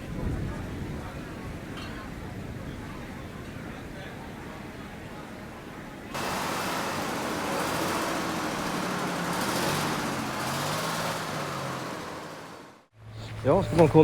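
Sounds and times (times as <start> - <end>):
road noise: 4.2 - 14.0
vehicle engine running: 6.2 - 14.0.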